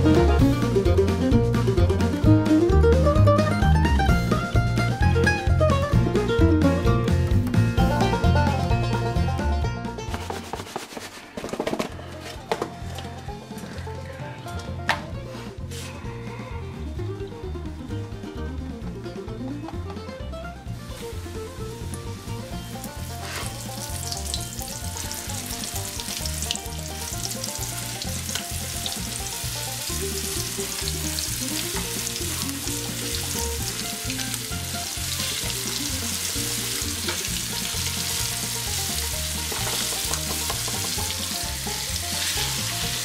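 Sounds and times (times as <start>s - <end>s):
background music: 0.0s - 43.0s
chicken deep-frying in oil: 20.8s - 43.0s.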